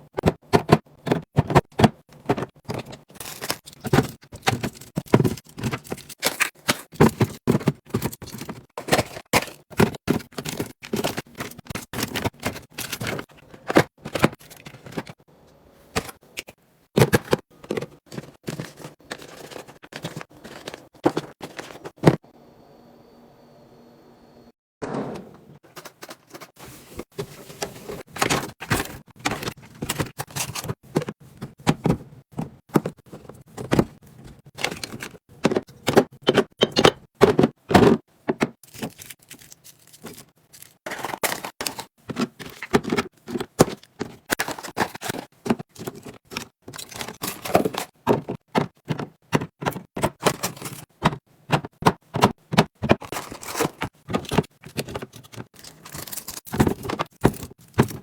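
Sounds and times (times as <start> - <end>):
containers set down on shelves: 34.6 - 38.6.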